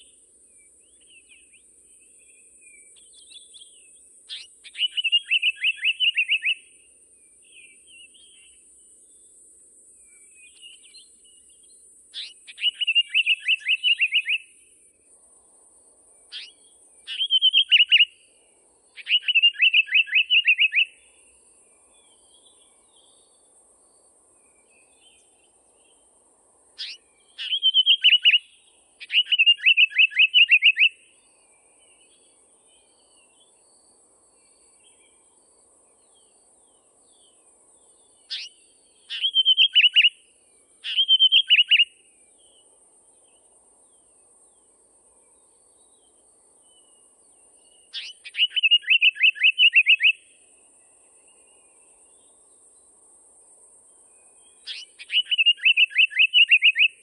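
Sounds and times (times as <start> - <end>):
songbird singing: 0.0 - 57.0.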